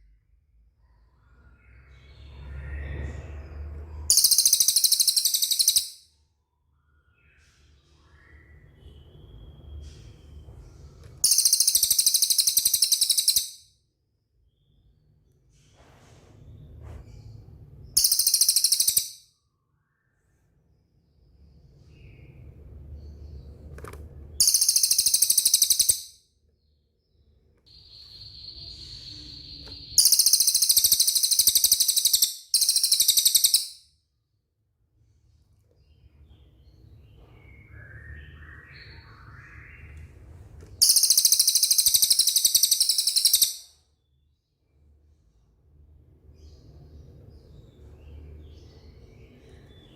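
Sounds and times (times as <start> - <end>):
faint bird chirps: 0.0 - 34.4, 35.0 - 49.9
bird trilling: 4.1 - 6.0, 11.2 - 13.6, 18.0 - 19.2, 24.4 - 26.1, 27.7 - 33.8, 40.8 - 43.7
bird whistling: 4.1 - 6.0, 11.2 - 13.6, 18.0 - 19.2, 24.4 - 26.1, 27.7 - 33.8, 40.8 - 43.8.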